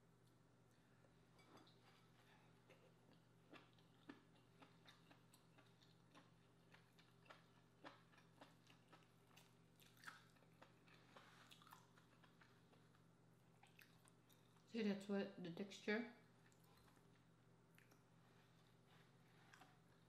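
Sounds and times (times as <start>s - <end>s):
low steady hum: 0.0s - 20.0s
wet chewing clicks and smacks: 2.7s - 13.0s, 13.6s - 14.7s, 16.4s - 18.7s.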